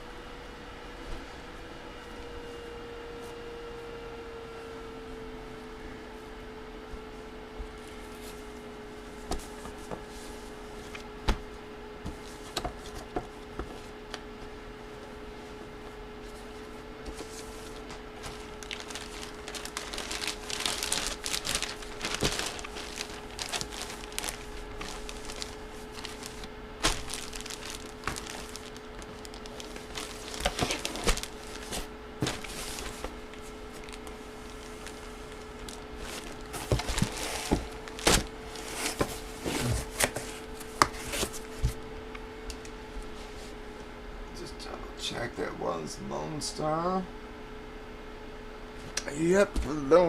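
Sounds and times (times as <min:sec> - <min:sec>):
faint steady hum: 0:00.0 - 0:50.0
plastic packaging crinkling: 0:17.2 - 0:39.1.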